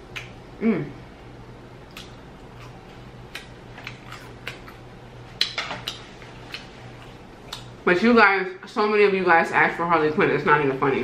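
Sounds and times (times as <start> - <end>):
steady low hum: 0.0 - 11.0
wet mouth smacks and clicks: 0.1 - 0.4, 1.9 - 2.2, 7.5 - 7.7
person chewing food: 1.8 - 7.8.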